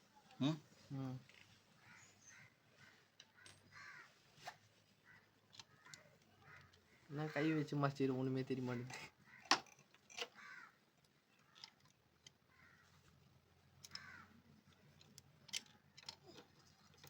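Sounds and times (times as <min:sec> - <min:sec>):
bird cawing: 0:01.8 - 0:04.2, 0:05.0 - 0:07.8, 0:09.2 - 0:09.6, 0:10.3 - 0:10.8, 0:12.5 - 0:12.9, 0:13.9 - 0:14.4.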